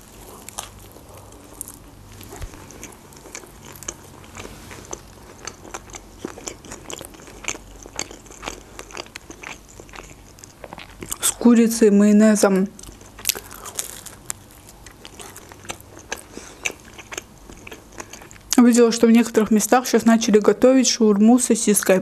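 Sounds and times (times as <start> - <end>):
close-up chewing: 0.0 - 11.5, 12.7 - 18.6.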